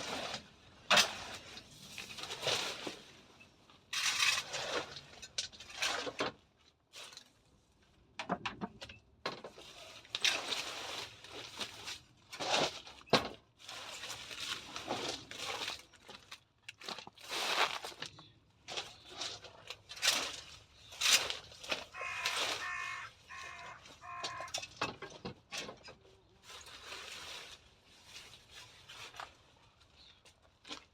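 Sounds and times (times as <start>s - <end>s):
hedge branches rustling and crackling: 9.5s - 30.9s.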